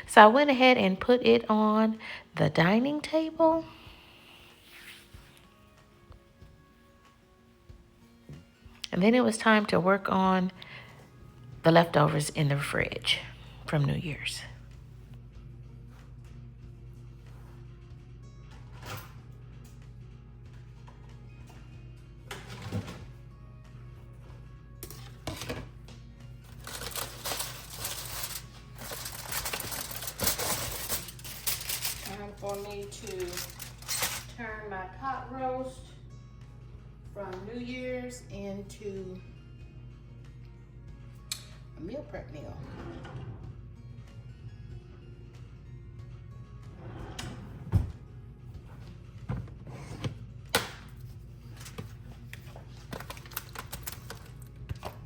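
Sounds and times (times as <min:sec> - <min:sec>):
food packaging crinkling: 0:52.9 - 0:54.3.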